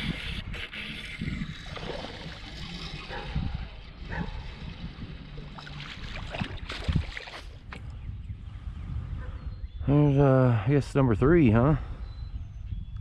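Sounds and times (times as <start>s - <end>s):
water lapping against boat: 0.0s - 7.9s
wind buffeting microphone: 0.0s - 13.0s.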